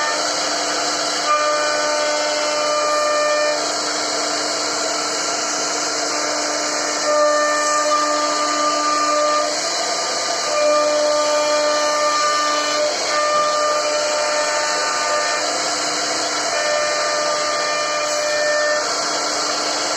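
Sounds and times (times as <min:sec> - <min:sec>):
wood router carving: 0:00.0 - 0:19.9.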